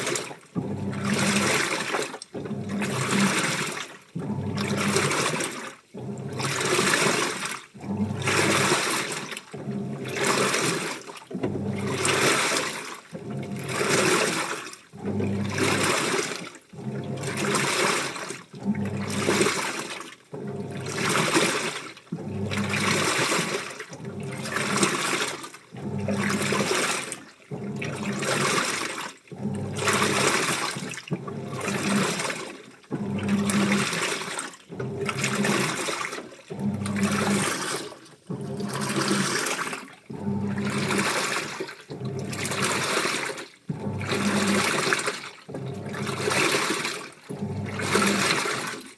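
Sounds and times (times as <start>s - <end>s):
washing machine water sloshing: 0.0s - 48.9s
low motor hum: 34.7s - 35.8s, 36.5s - 41.1s.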